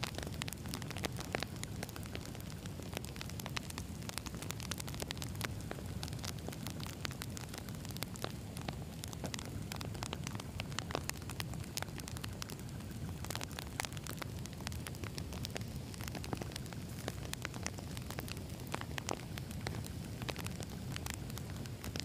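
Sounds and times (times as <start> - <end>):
campfire logs crackling and popping: 0.0 - 22.0
low rumble of flame: 0.0 - 22.0.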